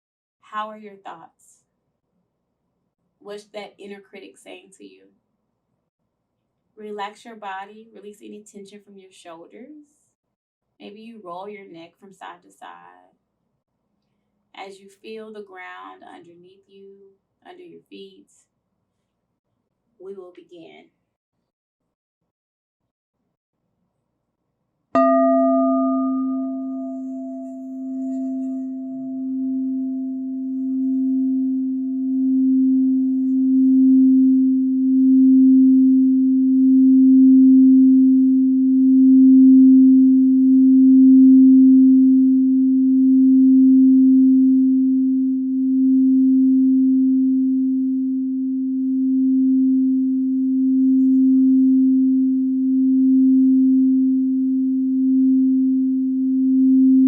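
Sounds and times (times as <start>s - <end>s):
singing bowl strike ring: 25.0s - 35.7s
singing bowl tone: 25.0s - 57.0s.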